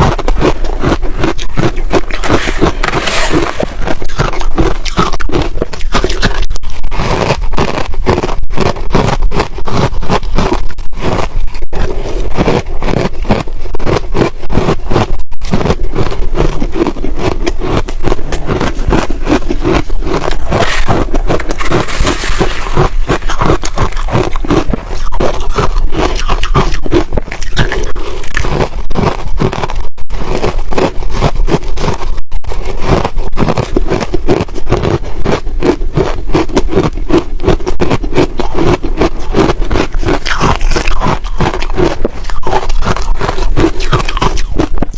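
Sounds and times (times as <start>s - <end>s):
chewing crunchy ice: 0.0s - 44.9s.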